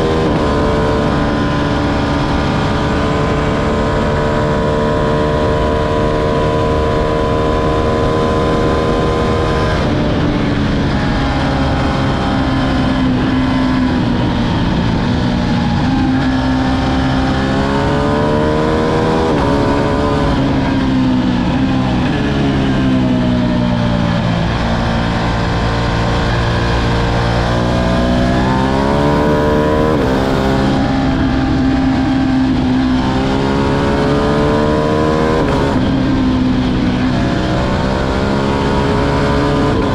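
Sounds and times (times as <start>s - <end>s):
motorcycle engine accelerating: 0.0s - 39.9s
wind rush: 0.0s - 39.9s.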